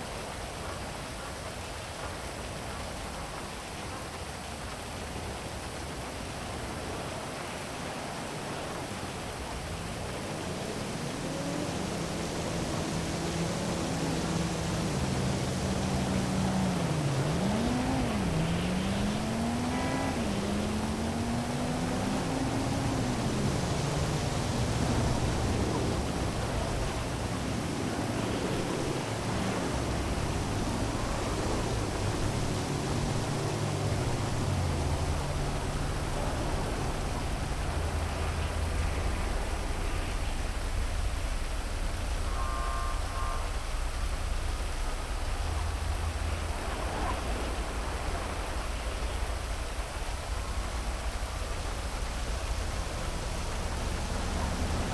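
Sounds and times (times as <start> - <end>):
low traffic rumble: 4.9 - 54.9
heavy rain hissing: 7.8 - 54.9
vehicle passing: 9.3 - 42.0, 50.4 - 54.9.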